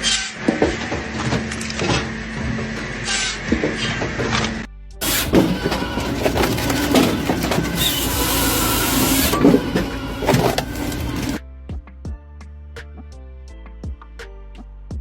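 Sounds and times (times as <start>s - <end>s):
music: 0.0s - 15.0s
wood-processing machinery clattering: 3.8s - 11.4s.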